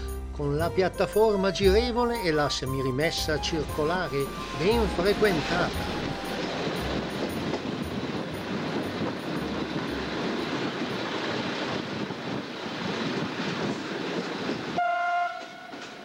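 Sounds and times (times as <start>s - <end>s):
train wheel rumble: 3.1s - 16.0s
wind at train window: 4.3s - 16.0s.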